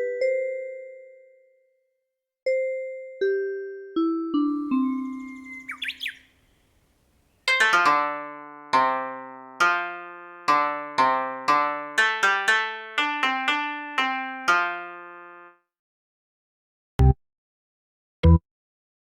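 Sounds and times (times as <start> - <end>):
keyboard melody: 2.5 - 6.2, 7.5 - 15.7.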